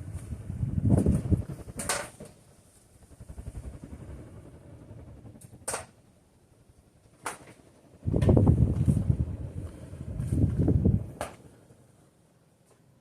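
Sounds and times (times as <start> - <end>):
fan draft buffeting microphone: 0.0 - 4.0, 8.0 - 11.5.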